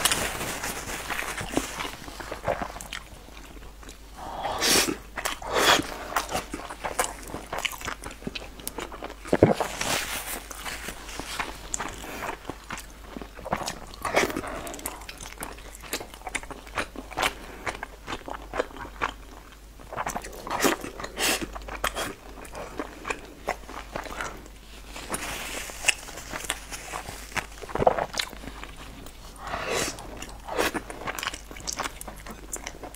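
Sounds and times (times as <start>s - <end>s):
chewing and biting: 0.0s - 4.0s, 4.9s - 32.9s.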